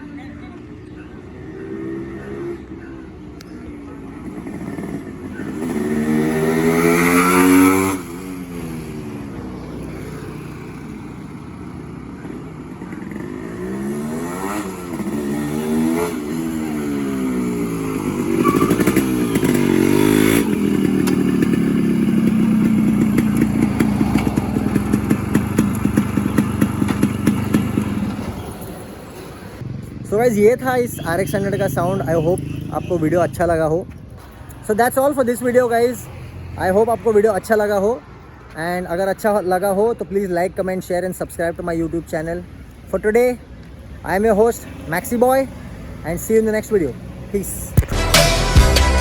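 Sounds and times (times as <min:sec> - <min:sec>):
motorcycle engine revving: 0:00.6 - 0:03.2, 0:03.8 - 0:33.8
exhaust popping: 0:14.6 - 0:33.4.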